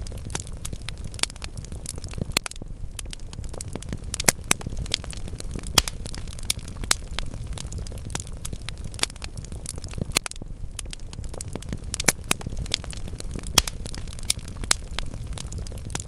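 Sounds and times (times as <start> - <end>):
burning logs crackling and popping: 0.0 - 16.0
low rumble of flames: 0.0 - 16.0.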